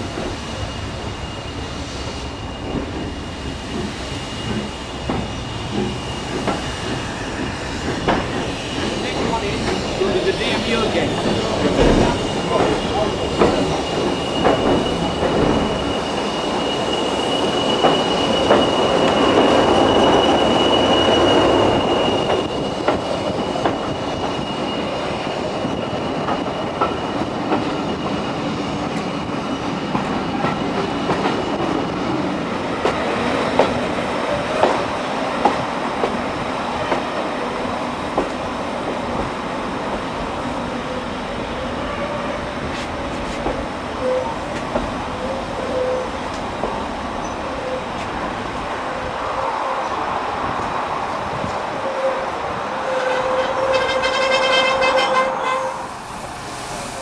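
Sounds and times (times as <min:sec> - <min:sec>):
train running noise and wind: 0:00.0 - 0:57.0
high wheel squeal: 0:00.4 - 0:32.2, 0:40.8 - 0:48.1, 0:51.7 - 0:57.0.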